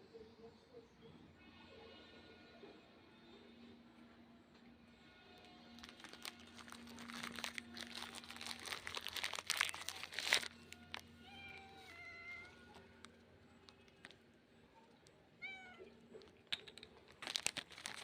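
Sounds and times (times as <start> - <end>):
cat crunching biscuits: 5.4 - 15.2, 15.9 - 18.0
cat meowing softly: 11.2 - 12.7, 15.4 - 16.0.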